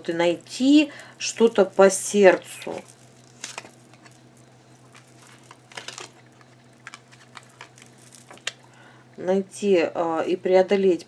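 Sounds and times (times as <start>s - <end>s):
faint steady hum: 0.0s - 11.0s
cards clicking and rustling: 2.8s - 4.2s, 4.8s - 8.7s.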